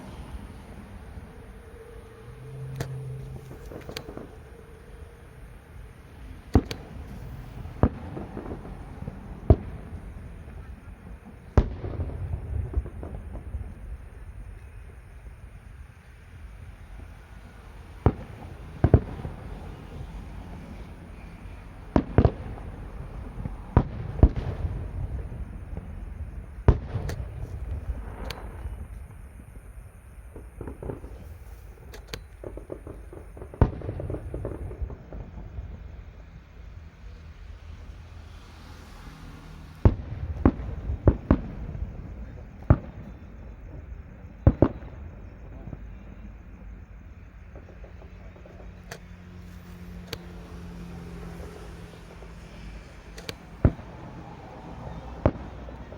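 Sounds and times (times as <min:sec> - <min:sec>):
low rumble: 0:00.0 - 0:15.6
fireworks bangs: 0:00.0 - 0:55.9.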